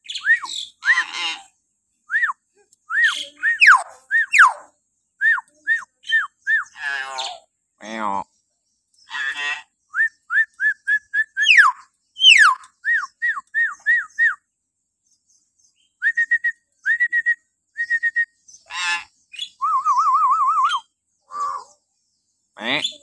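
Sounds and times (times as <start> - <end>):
bird whistling: 0.0 - 1.1, 2.1 - 4.6, 5.2 - 6.8, 9.9 - 14.4, 15.8 - 18.4, 19.4 - 21.7
harsh bird call: 2.9 - 4.6, 11.3 - 13.2.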